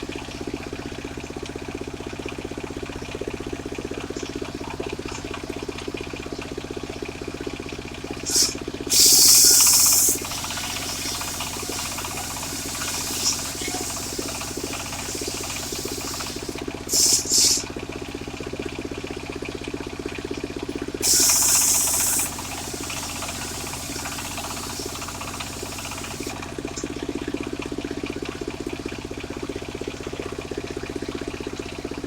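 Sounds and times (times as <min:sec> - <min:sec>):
saw engine running: 0:08.1 - 0:17.8, 0:21.0 - 0:26.6
saw blade hissing through wood: 0:08.2 - 0:17.7, 0:21.0 - 0:26.4.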